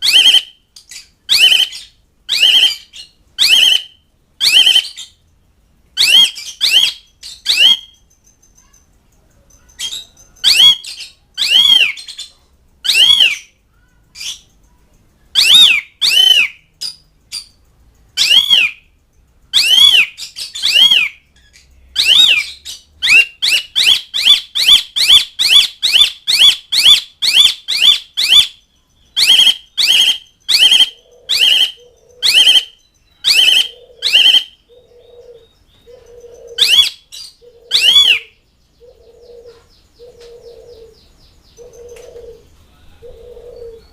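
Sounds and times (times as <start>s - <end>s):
starling giving harsh calls: 29.2s - 34.6s.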